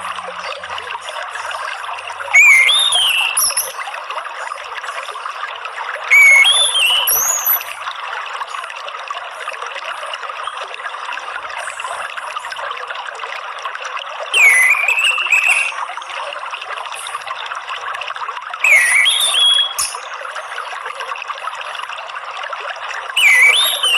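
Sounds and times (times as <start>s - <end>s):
water trickling: 0.0s - 23.9s
thrush whistling song: 2.2s - 3.9s, 6.1s - 7.8s, 14.3s - 15.9s, 18.6s - 20.1s, 23.2s - 23.9s.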